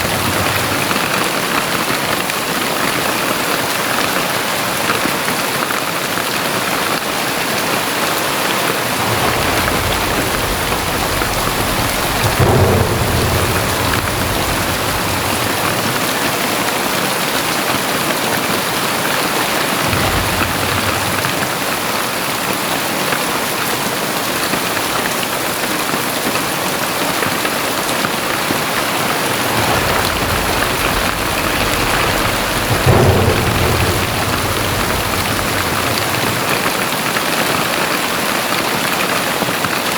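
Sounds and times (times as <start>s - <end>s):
low rumbles: 0.0s - 1.6s, 8.8s - 16.7s, 19.4s - 22.5s, 27.8s - 38.0s
heavy rain pouring: 0.0s - 39.9s.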